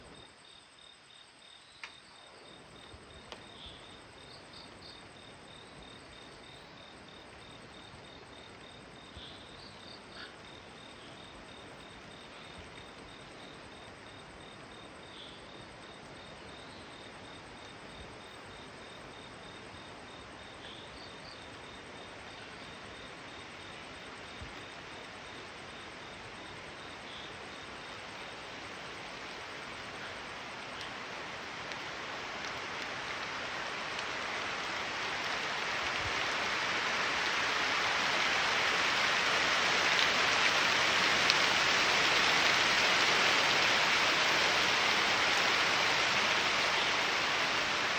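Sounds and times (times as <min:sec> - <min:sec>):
insect chirps: 0:00.0 - 0:47.9
heavy rain rushing hiss: 0:21.7 - 0:47.9.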